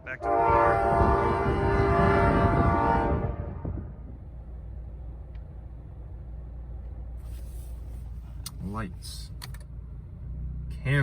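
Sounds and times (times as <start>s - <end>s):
wind noise: 0.0s - 4.8s
low steady rumble: 0.0s - 11.0s
locomotive air horn: 0.1s - 3.9s.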